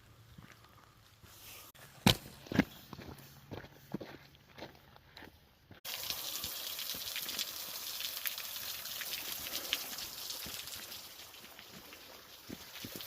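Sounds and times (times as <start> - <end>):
small waterfall splashing: 5.8 - 13.0.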